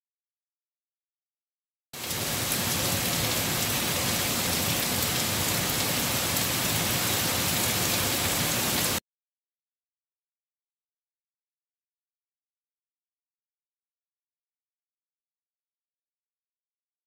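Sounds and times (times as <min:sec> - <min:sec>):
rain falling on leaves: 0:02.0 - 0:09.0.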